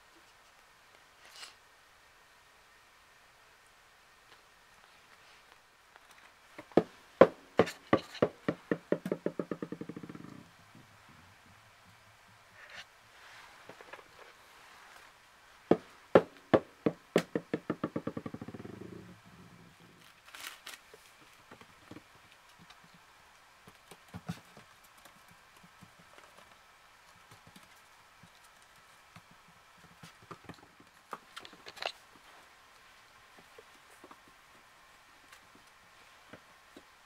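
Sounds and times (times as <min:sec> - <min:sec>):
hard object bouncing on hard surface: 0:06.6 - 0:10.4, 0:15.7 - 0:18.9.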